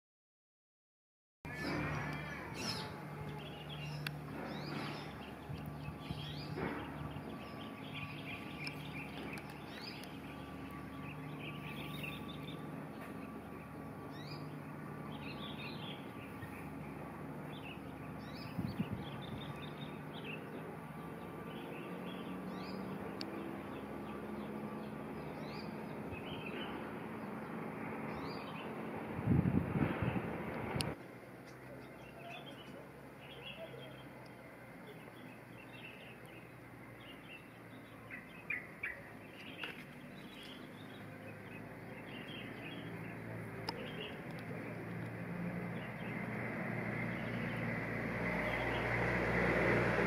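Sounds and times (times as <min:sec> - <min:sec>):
steady low hum: 0:01.5 - 0:31.4.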